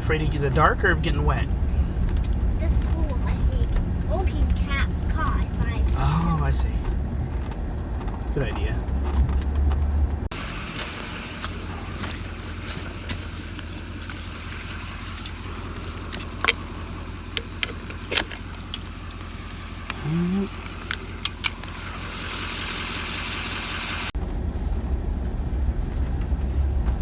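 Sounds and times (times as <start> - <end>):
vehicle engine idling: 0.0 - 27.0
metallic clicks and jingles: 6.4 - 10.2, 13.6 - 19.9.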